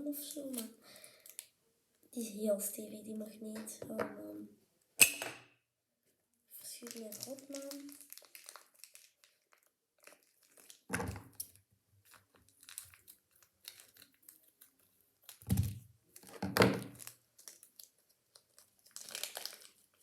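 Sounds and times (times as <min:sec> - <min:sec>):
plastic bag crinkling and tearing: 0:06.6 - 0:20.0.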